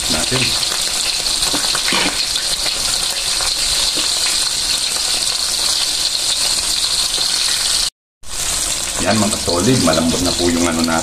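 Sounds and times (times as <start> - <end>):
chicken sizzling in oil: 0.0 - 11.0
pot boiling vigorously: 0.0 - 11.0.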